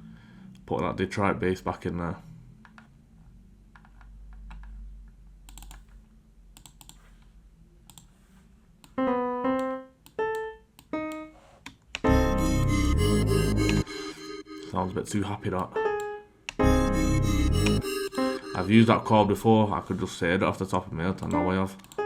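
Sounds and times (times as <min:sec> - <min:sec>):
keyboard and mouse clicks: 0:02.6 - 0:02.9, 0:03.7 - 0:04.8, 0:05.5 - 0:06.0, 0:06.6 - 0:07.3, 0:07.9 - 0:08.1, 0:09.6 - 0:12.1, 0:12.8 - 0:14.7, 0:15.6 - 0:18.6, 0:21.2 - 0:22.0
synth keyboard notes: 0:12.0 - 0:20.0
synth chord: 0:12.1 - 0:15.6, 0:16.6 - 0:19.8.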